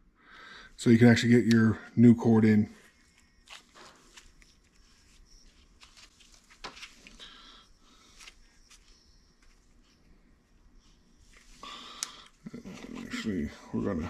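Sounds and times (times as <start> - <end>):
brief rustle: 3.0 - 7.2.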